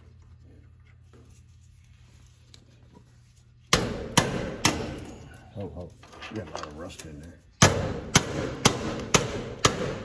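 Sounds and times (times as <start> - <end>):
sharp metal knocks with rattle: 3.7 - 5.2, 7.6 - 10.0.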